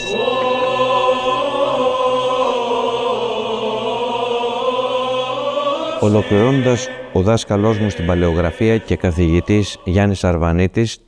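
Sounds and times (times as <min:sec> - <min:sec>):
choir chanting over low drone: 0:00.0 - 0:10.5.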